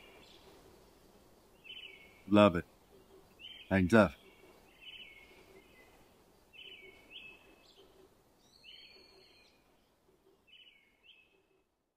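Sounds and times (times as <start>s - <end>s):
background hiss: 0.0s - 11.9s
faint bird chirps: 0.0s - 11.9s.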